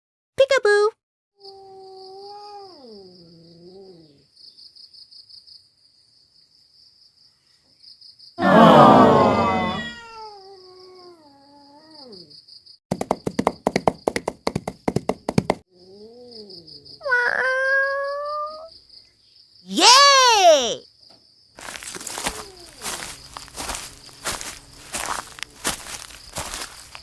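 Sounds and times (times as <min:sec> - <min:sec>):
cat yowling: 0:01.5 - 0:04.2, 0:08.4 - 0:12.3, 0:15.9 - 0:18.7, 0:22.3 - 0:22.9
cat meowing: 0:01.6 - 0:03.1, 0:09.0 - 0:12.2, 0:17.0 - 0:18.7
insects chirring: 0:20.8 - 0:27.0.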